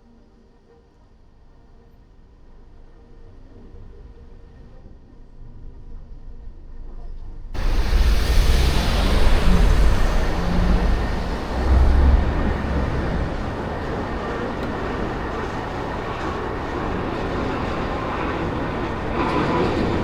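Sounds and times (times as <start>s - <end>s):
traffic noise with deep rumble: 7.6s - 20.0s.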